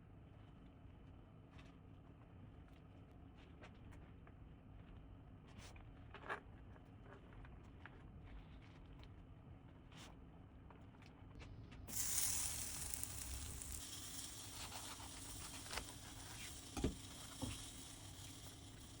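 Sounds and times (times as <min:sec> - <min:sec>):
hot oil sizzling in a frying pan: 0:11.9 - 0:19.0.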